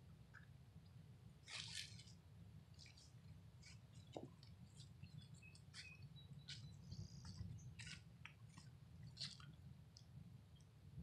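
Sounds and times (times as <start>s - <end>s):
low steady rumble: 0.0s - 11.0s
faint bird chirps: 3.6s - 8.0s.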